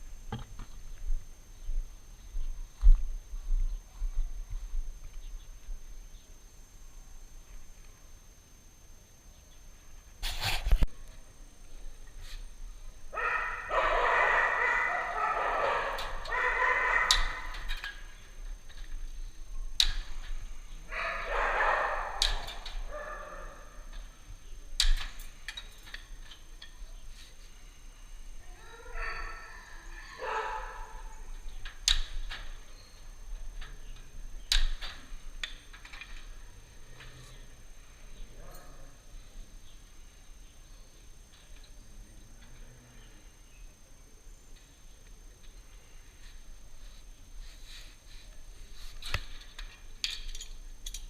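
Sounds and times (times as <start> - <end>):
farm animal calls: 13.2 - 17.6, 28.6 - 31.0.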